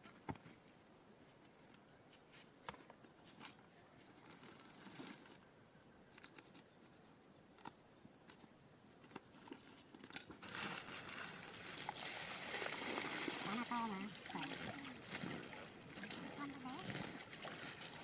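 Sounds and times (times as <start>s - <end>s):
running water hiss: 10.5s - 18.0s.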